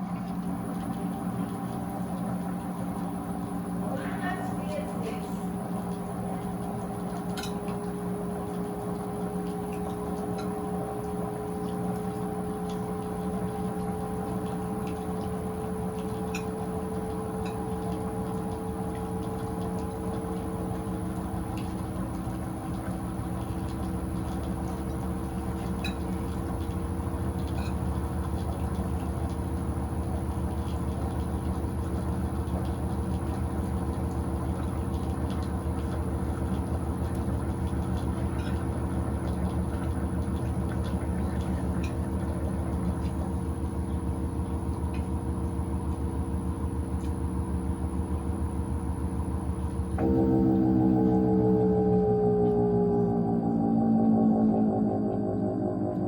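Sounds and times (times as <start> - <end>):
washing machine motor and pump hum: 0.0 - 56.0
water draining: 0.0 - 56.0.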